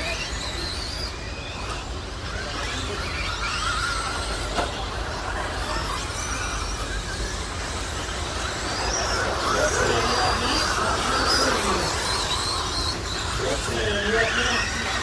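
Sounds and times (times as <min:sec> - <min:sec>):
rc truck motors whining: 0:00.0 - 0:15.0.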